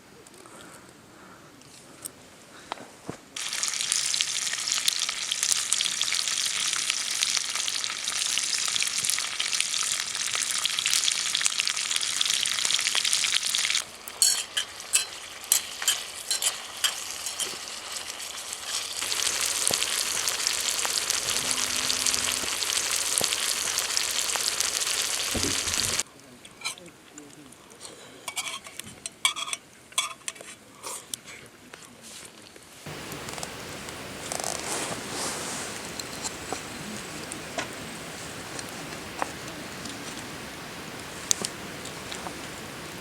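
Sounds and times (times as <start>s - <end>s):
food sizzling in a hot pan: 3.4s - 26.0s.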